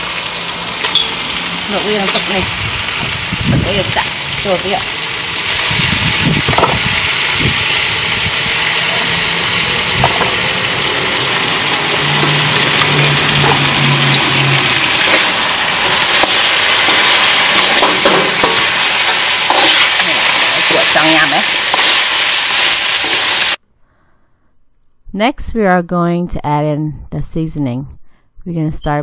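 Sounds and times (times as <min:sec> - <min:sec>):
crab sizzling in hot oil: 0:00.0 - 0:23.6
spatula tossing in wok: 0:11.8 - 0:23.5.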